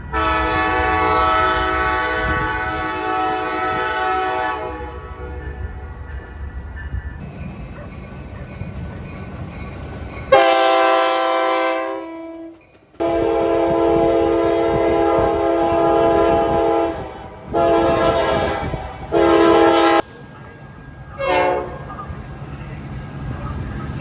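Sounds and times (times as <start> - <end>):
locomotive air horn blasts: 0.0 - 5.4, 10.3 - 20.1, 21.2 - 21.8
low rumble of train: 0.0 - 24.0.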